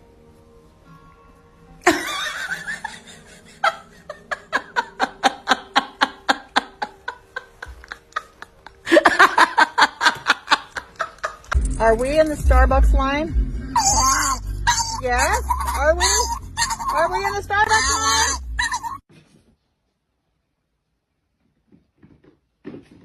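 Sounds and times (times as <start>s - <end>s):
faint background music: 0.0s - 19.0s
person laughing: 1.8s - 11.6s.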